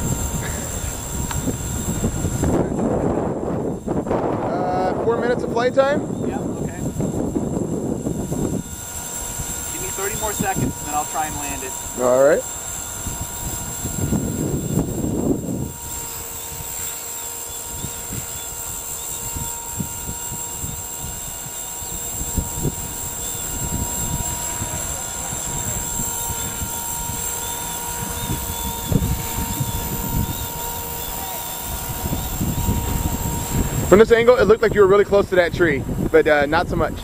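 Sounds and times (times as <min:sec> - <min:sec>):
rc helicopter rotor whine: 0:00.0 - 0:37.0
wind buffeting microphone: 0:00.0 - 0:37.0.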